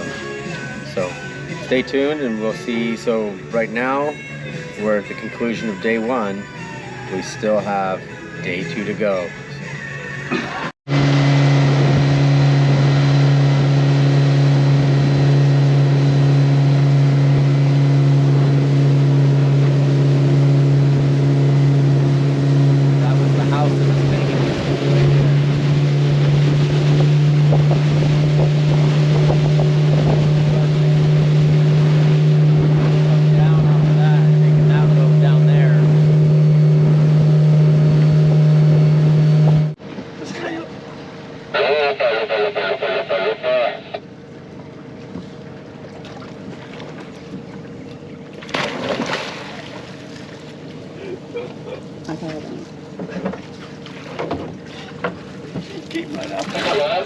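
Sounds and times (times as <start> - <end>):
boat engine humming: 0.0 - 57.0
water rushing past hull: 10.9 - 39.8, 44.9 - 50.9
wind buffeting microphone: 24.1 - 33.2.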